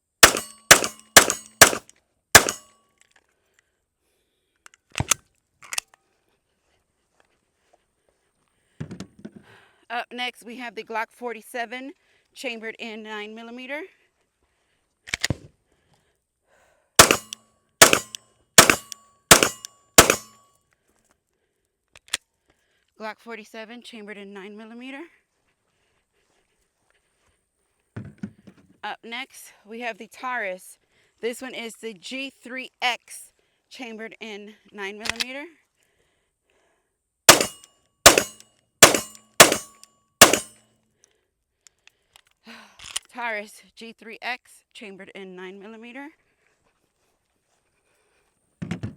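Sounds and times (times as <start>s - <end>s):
pistol shots: 0.2s - 1.8s, 2.4s - 2.7s, 17.0s - 20.4s, 37.3s - 40.5s
sharp clicks: 0.2s - 2.7s, 17.0s - 20.3s.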